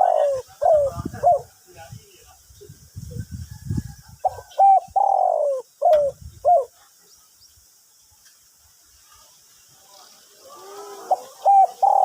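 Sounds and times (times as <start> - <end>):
dove cooing: 0.0 - 1.5, 4.2 - 6.8, 10.4 - 12.0.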